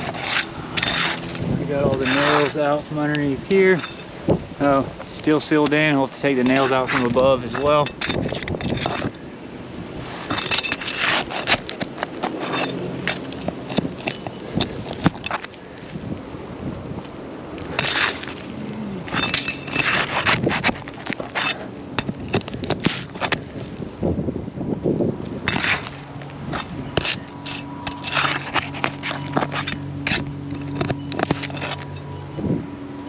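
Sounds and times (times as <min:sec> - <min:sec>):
metal tool scraping shingles: 0:00.0 - 0:04.2, 0:06.2 - 0:09.3, 0:10.0 - 0:15.6, 0:17.6 - 0:23.9, 0:25.4 - 0:32.1.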